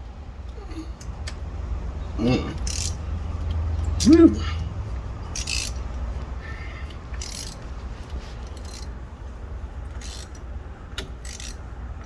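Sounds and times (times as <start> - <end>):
socket ratchet clicking: 2.6 - 4.2, 5.3 - 6.0, 7.1 - 7.6, 8.4 - 8.9, 10.0 - 11.6.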